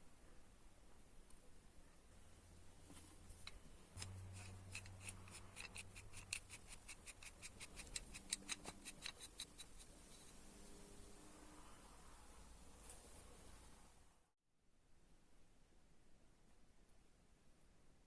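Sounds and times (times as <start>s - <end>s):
wrench clicking: 3.4s - 9.9s.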